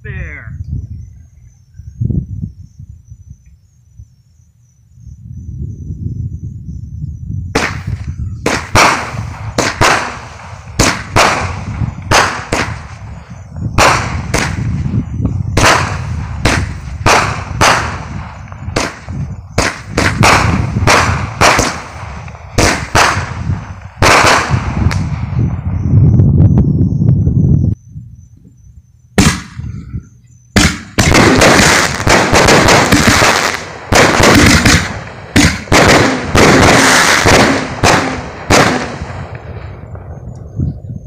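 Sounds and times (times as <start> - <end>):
low rumble: 0.6 - 32.4
fireworks bangs: 7.5 - 25.7, 29.2 - 29.8, 30.5 - 40.4.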